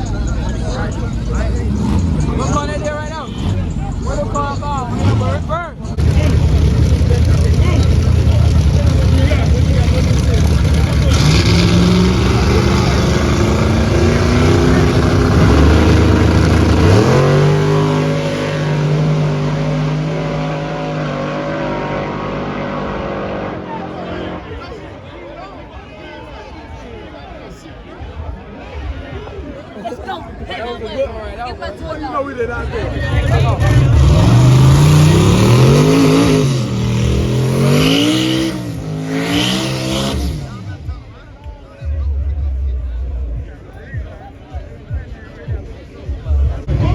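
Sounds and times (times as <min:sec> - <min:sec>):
drag racing car engine revving: 0:00.0 - 0:24.6, 0:32.7 - 0:41.0.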